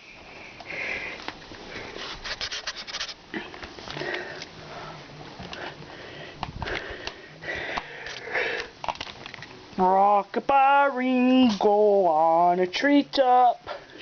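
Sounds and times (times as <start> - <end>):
kitten scrabbling and rustling: 2.0 - 3.8.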